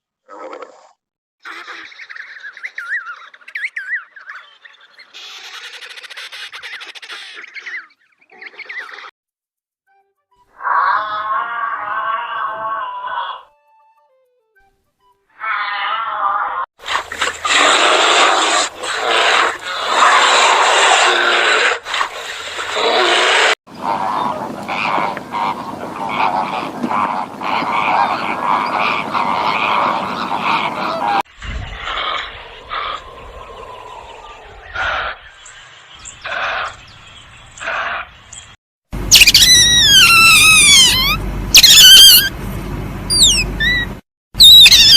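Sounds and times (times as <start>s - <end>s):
rough animal cries: 10.5s - 13.6s, 15.3s - 16.7s, 22.9s - 31.2s, 39.1s - 42.3s, 43.1s - 44.9s
animal short pitched call: 39.1s - 42.3s, 43.1s - 44.9s.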